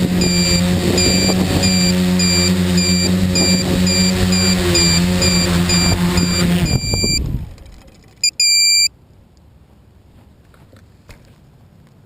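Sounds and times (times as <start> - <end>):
electronic beeper: 0.2 - 7.2, 8.2 - 8.9
electronic music with high beeps: 0.2 - 7.2.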